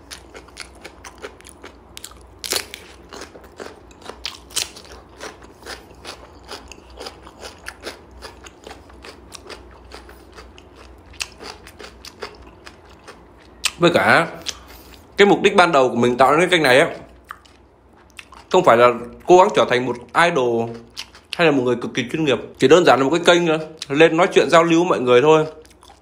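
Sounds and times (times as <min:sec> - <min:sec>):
crunchy chewing of cucumber: 0:00.0 - 0:15.1, 0:17.0 - 0:21.7, 0:25.4 - 0:26.0.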